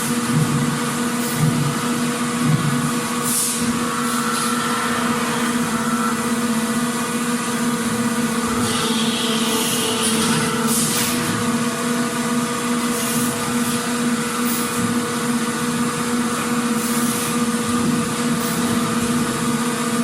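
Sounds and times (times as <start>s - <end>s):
factory machinery droning hum: 0.0s - 20.0s
short air hisses: 3.2s - 5.6s.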